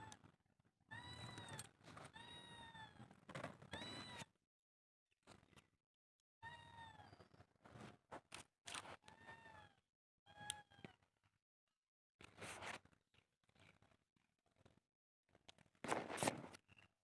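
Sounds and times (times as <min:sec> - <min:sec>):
cat meowing: 0:00.9 - 0:03.1, 0:03.7 - 0:04.3.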